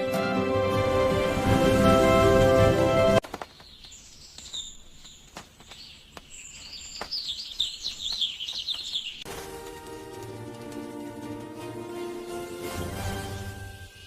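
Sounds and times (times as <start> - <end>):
small birds chirping: 3.3 - 9.3.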